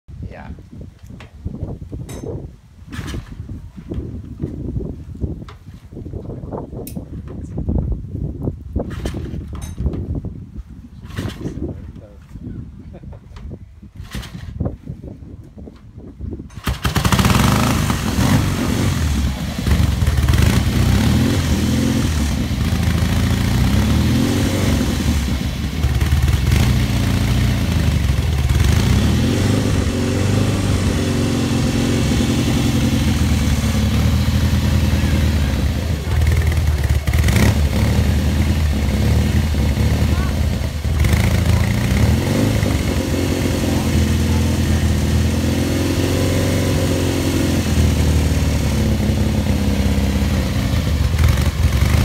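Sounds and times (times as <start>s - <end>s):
motorcycle engine starting and revving: 8.8s - 10.0s, 11.0s - 11.7s, 14.0s - 14.6s, 16.4s - 52.0s.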